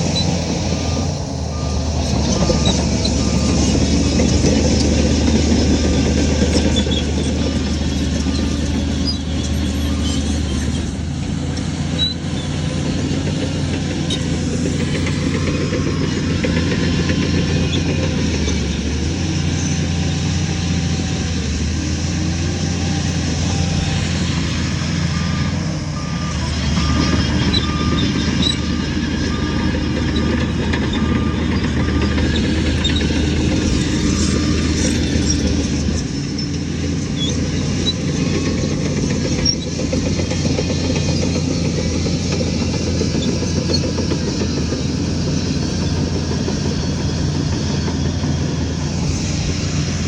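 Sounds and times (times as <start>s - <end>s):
diesel machinery engine: 0.0s - 50.0s
reversing alarm beeping: 0.1s - 10.5s, 13.9s - 18.4s, 22.4s - 36.6s.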